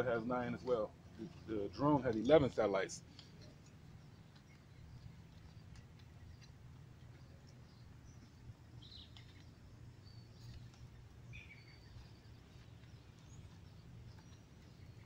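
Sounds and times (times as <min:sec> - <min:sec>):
low steady hum: 0:00.0 - 0:15.0
faint bird chirps: 0:03.0 - 0:15.0.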